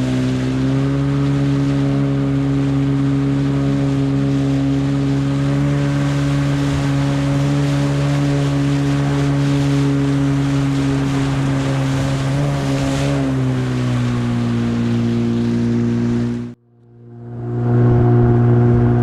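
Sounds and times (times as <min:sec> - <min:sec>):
outboard engine running: 0:00.0 - 0:19.0
water and wind rushing: 0:00.0 - 0:19.0.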